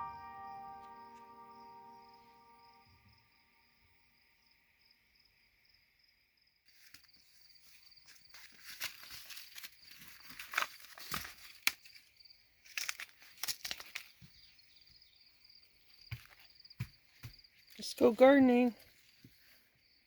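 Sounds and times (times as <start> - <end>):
insects chirring: 0.1 - 20.0
rustling and crackling: 6.7 - 14.4.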